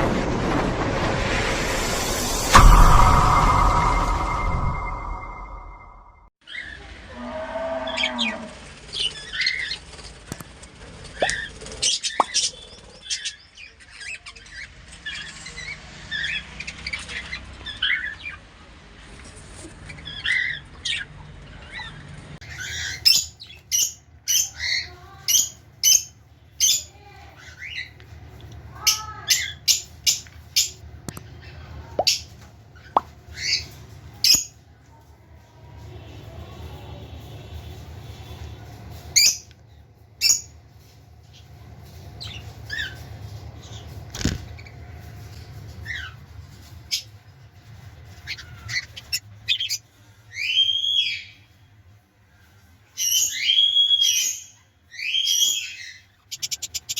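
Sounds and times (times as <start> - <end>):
loud sharp short chirps: 2.4 - 6.3
budgerigars chirping and chattering: 55.0 - 56.9.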